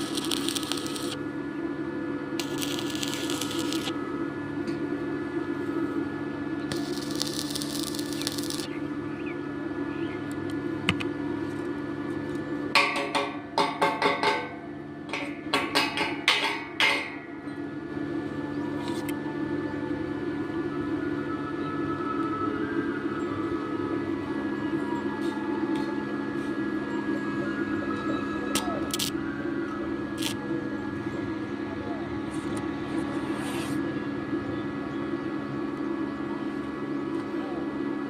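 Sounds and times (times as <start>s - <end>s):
welding arc crackling: 0.0s - 1.2s, 2.4s - 4.0s, 6.7s - 8.8s, 28.9s - 29.1s, 30.2s - 30.4s
welding machine humming: 0.0s - 21.2s, 27.6s - 37.3s.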